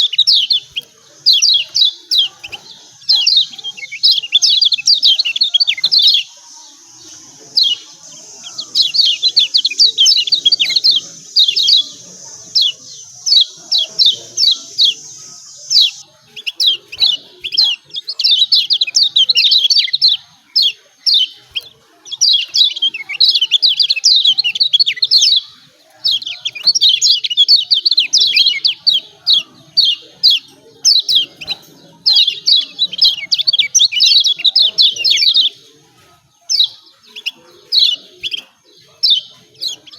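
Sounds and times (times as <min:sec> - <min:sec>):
bird chirping rapidly: 0:00.0 - 0:35.7, 0:36.4 - 0:39.9.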